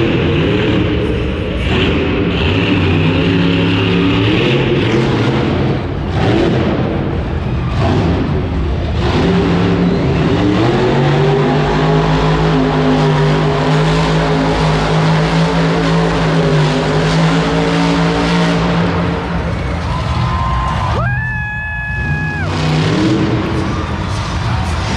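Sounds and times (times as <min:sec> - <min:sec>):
truck engine at high revs: 0:00.0 - 0:20.9, 0:21.9 - 0:24.9.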